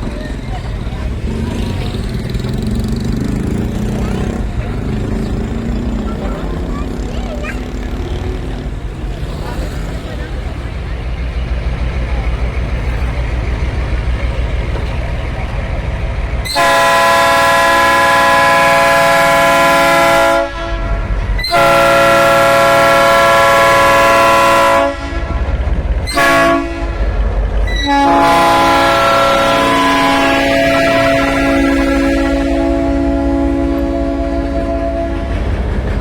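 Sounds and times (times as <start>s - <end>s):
train rumbling: 0.0s - 36.0s
locomotive multi-note chime horn: 16.5s - 25.4s, 27.7s - 35.7s.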